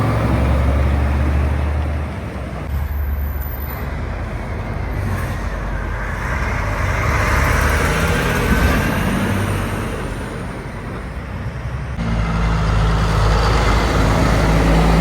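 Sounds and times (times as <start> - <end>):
heavy vehicle engine: 0.0 - 15.0.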